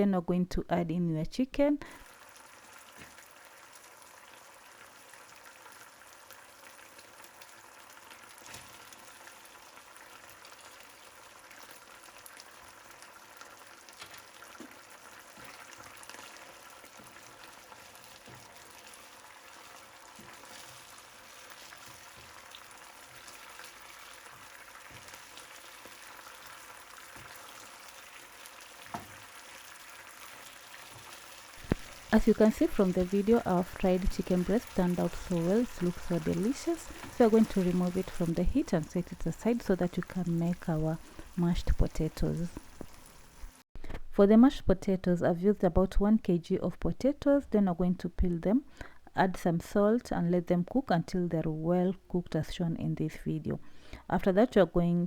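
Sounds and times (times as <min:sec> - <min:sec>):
sauce sizzling and bubbling: 0:01.8 - 0:43.7.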